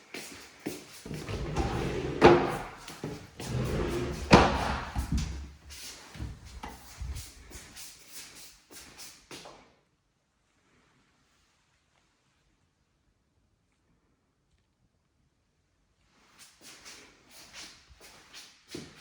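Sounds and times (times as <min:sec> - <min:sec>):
knocks and thuds: 0:03.5 - 0:05.5.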